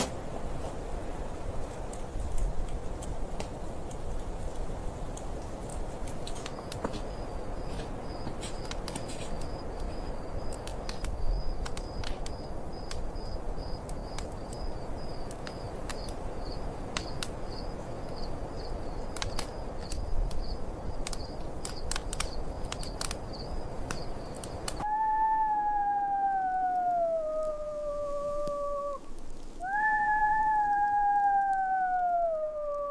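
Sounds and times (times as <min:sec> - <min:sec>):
wood fire crackling: 0:00.0 - 0:24.9, 0:26.4 - 0:32.9
wind noise: 0:00.0 - 0:32.9
long howl sliding down: 0:24.8 - 0:32.9.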